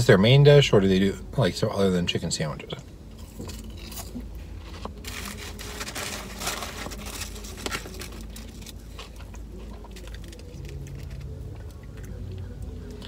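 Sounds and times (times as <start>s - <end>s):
steady low hum: 0.0s - 13.0s
man chewing fries: 3.1s - 13.0s.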